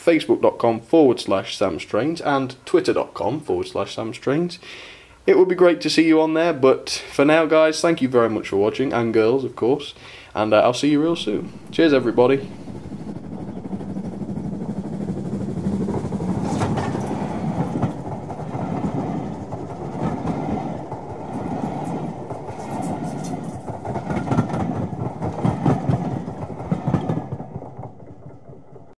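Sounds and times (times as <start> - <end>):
train rumbling past: 6.4 - 29.0.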